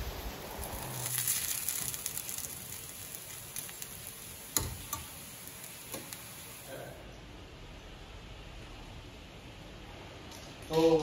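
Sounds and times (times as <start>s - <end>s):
food sizzling in a pan: 0.0s - 6.8s.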